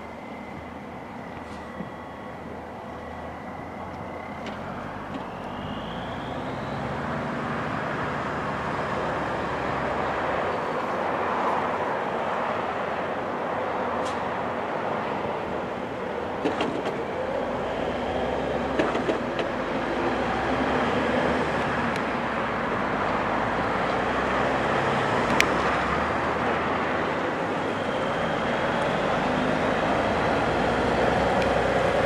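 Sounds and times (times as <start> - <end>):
short rising whine: 0.0 - 10.9
truck engine running: 15.3 - 32.0.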